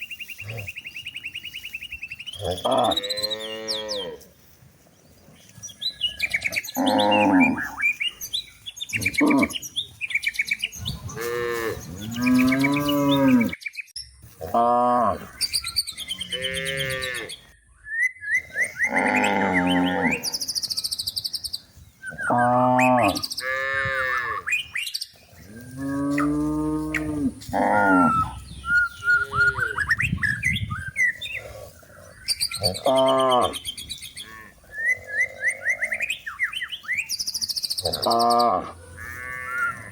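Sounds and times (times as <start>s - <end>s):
small birds chirping: 0.0s - 39.9s
cows mooing: 2.4s - 4.2s, 6.3s - 7.8s, 11.1s - 13.6s, 16.2s - 17.4s, 18.8s - 20.4s, 22.3s - 24.4s, 25.4s - 28.4s, 32.5s - 35.9s, 37.8s - 39.9s.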